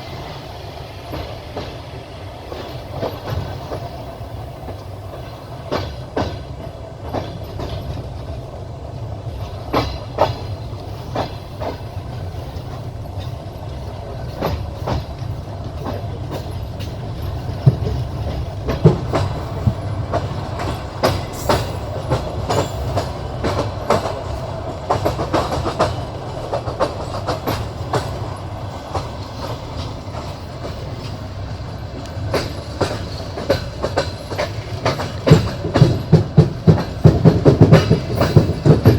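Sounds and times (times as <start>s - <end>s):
train rumble: 0.0s - 38.9s
train wheels clattering over joints: 0.0s - 38.9s.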